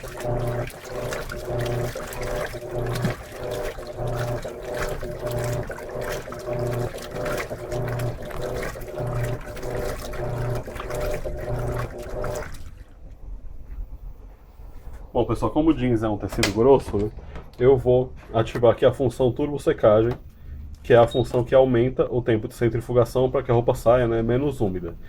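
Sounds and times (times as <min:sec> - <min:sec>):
water sloshing: 0:00.0 - 0:13.8
washing machine motor humming: 0:00.0 - 0:25.0.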